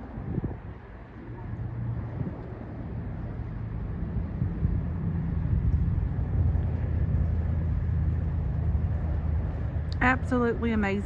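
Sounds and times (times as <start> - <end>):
strong wind buffeting microphone: 0.0 - 11.0.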